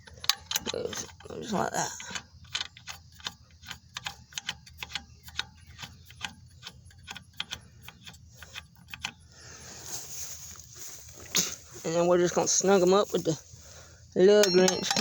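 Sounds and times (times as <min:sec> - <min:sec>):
lug nuts clicking on studs: 0:00.0 - 0:09.4, 0:14.4 - 0:15.0.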